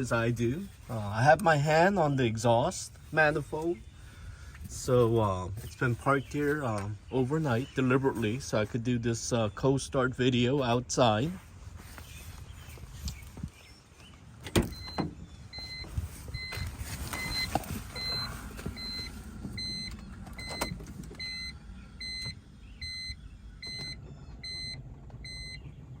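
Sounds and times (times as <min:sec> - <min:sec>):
car warning chime beeping: 0:14.7 - 0:25.7.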